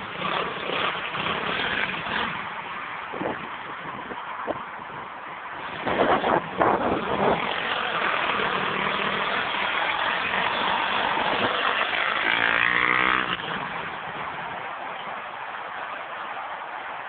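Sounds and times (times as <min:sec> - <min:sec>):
pit bike engine revving: 0:00.0 - 0:02.7, 0:05.6 - 0:14.3.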